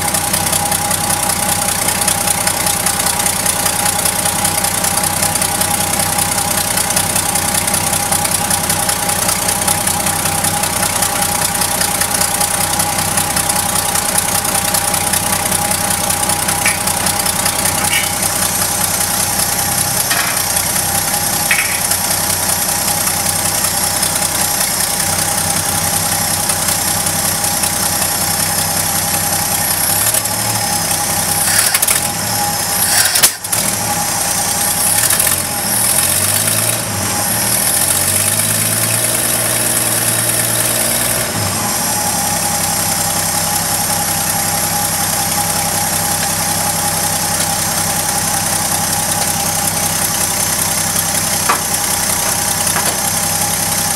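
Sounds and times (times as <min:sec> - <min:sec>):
truck engine idling: 0:00.0 - 0:53.9
sharp knock: 0:21.5 - 0:22.0, 0:51.5 - 0:53.1.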